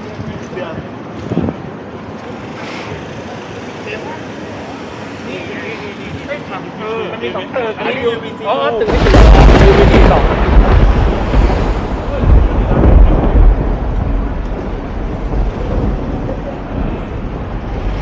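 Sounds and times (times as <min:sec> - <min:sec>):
wind buffeting microphone: 0:00.0 - 0:02.0, 0:08.8 - 0:18.0
street noise: 0:00.0 - 0:18.0.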